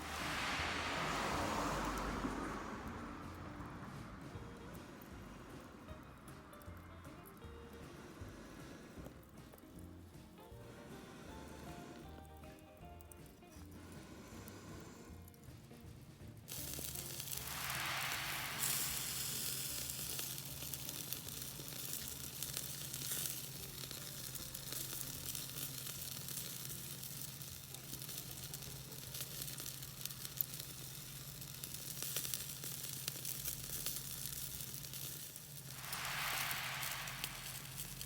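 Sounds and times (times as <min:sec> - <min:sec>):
chicken wings sizzling on grill: 0:00.0 - 0:06.0, 0:06.6 - 0:38.0.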